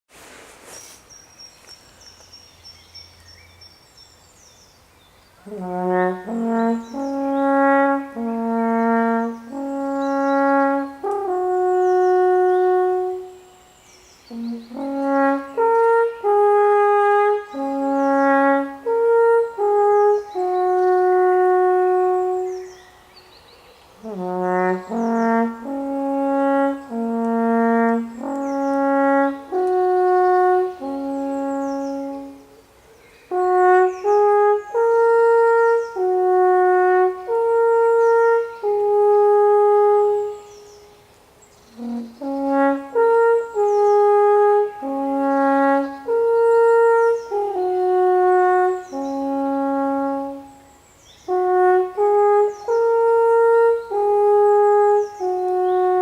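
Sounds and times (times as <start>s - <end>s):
alphorn playing slow melody: 24.1s - 32.6s, 33.3s - 40.6s, 41.8s - 50.6s, 51.3s - 56.0s.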